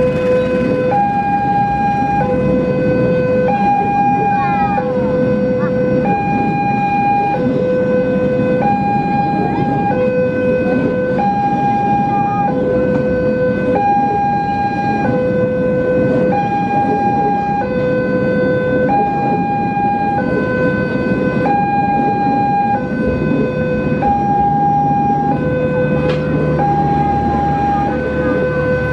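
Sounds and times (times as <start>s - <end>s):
level crossing two-tone alarm: 0.0s - 28.9s
steady low rumbling: 0.0s - 28.9s.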